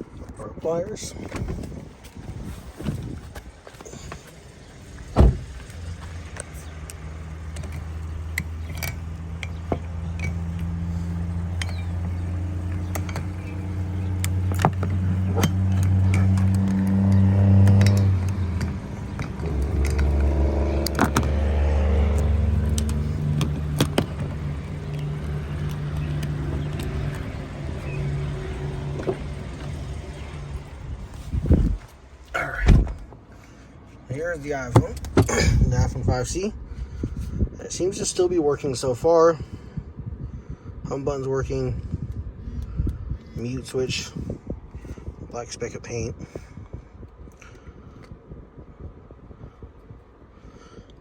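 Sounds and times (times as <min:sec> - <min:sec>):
car engine running: 0:01.4 - 0:39.0
sharp thump: 0:05.2 - 0:05.5.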